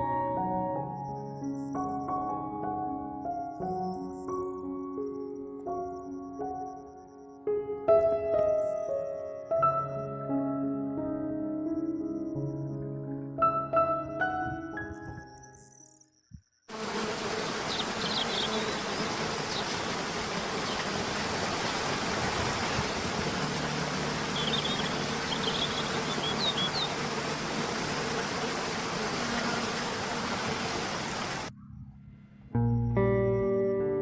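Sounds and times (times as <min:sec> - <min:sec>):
outdoor hiss: 0:16.7 - 0:31.5
high bird chirps: 0:17.6 - 0:19.8, 0:24.2 - 0:27.0.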